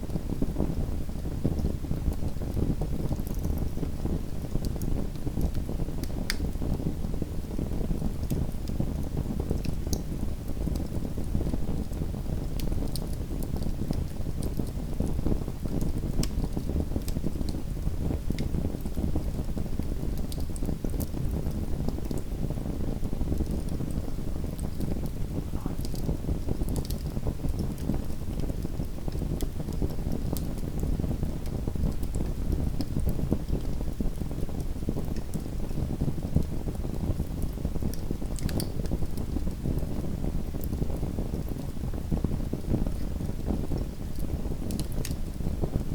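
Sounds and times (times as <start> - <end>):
low fire rumble: 0.0 - 45.9
wood fire crackling: 0.1 - 45.9
sharp pops and snaps: 5.4 - 6.6, 15.7 - 17.6, 25.5 - 30.9, 37.4 - 39.0, 44.1 - 45.2.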